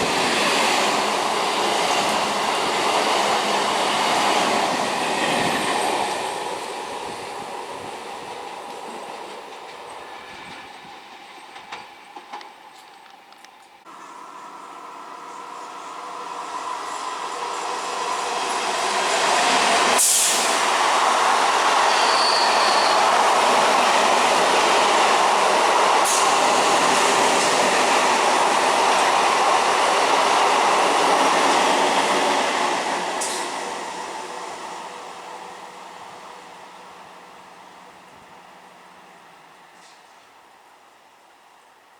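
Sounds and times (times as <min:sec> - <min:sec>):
train passing at speed: 0:00.0 - 0:13.0, 0:13.7 - 0:41.9
high wheel squeal: 0:21.8 - 0:23.2.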